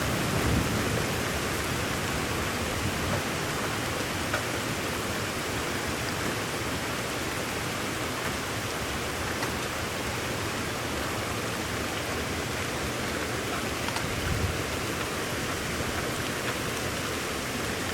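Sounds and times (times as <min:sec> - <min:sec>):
faint raindrop ticks: 0:04.3 - 0:04.6, 0:09.2 - 0:09.7
rain hissing: 0:13.7 - 0:17.8.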